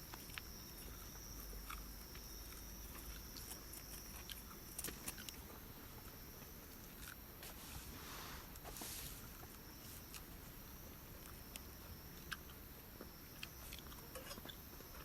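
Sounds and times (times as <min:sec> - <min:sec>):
chewing and gnawing: 0:00.0 - 0:07.6, 0:08.5 - 0:15.0.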